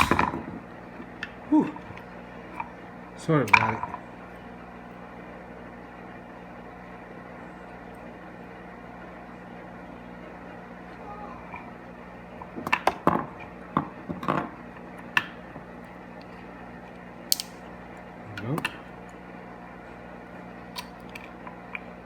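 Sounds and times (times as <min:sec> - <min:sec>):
steady background hum: 0:00.0 - 0:22.0
sharp clicks and taps of small parts: 0:17.3 - 0:17.6.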